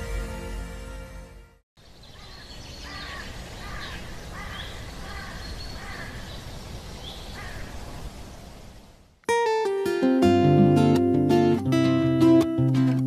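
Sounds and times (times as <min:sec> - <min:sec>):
higher bird chirps: 0:01.8 - 0:07.8
background noise: 0:01.8 - 0:11.4
bird calling: 0:01.9 - 0:08.2.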